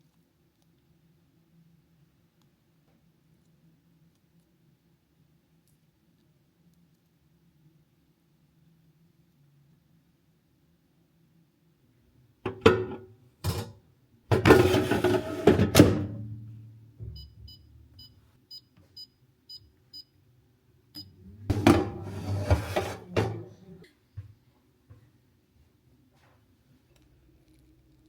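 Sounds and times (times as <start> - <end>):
objects clattering: 14.3 - 16.0, 21.5 - 23.4.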